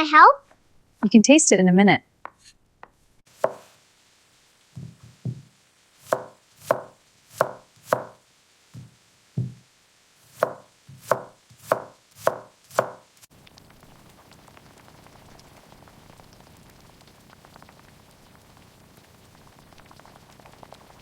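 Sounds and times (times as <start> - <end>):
faint rain hiss: 0.0 - 21.0
knife chopping on cutting board: 3.4 - 3.7, 4.8 - 8.2, 8.8 - 9.6, 10.3 - 13.0.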